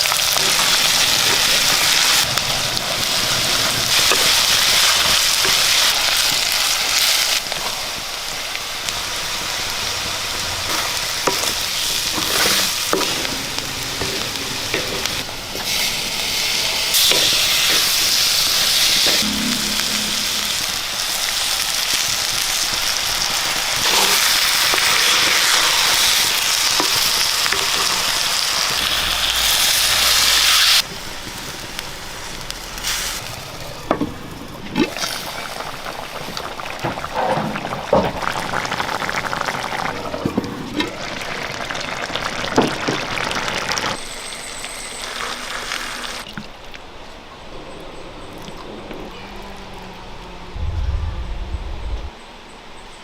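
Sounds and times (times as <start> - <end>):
food sizzling in a hot pan: 0.0 - 33.9, 40.9 - 46.2.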